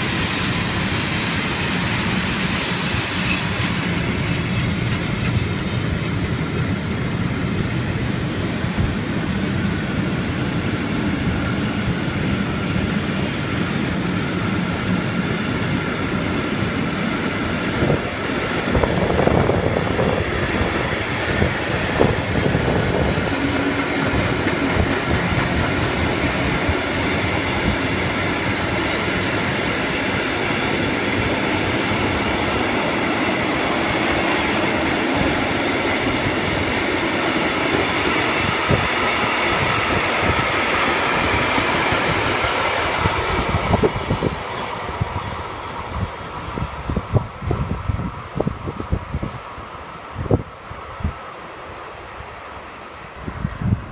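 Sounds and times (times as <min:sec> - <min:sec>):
train wheels clattering: 0:00.0 - 0:07.7, 0:21.4 - 0:37.0
train clanks: 0:00.0 - 0:47.6.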